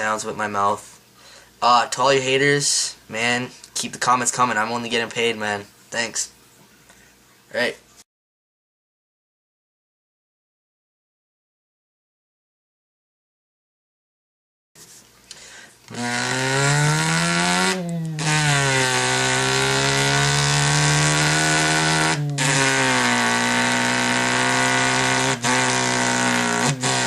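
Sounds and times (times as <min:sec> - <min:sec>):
man imitating car engine: 0:15.9 - 0:27.0.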